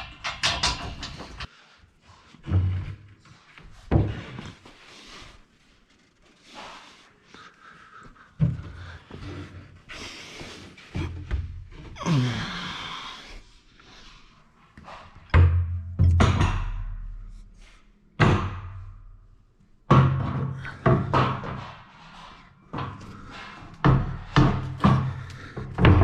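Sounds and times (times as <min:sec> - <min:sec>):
metal scaffolding knocks and clanks: 0:00.0 - 0:01.5, 0:14.8 - 0:19.2, 0:19.8 - 0:26.0.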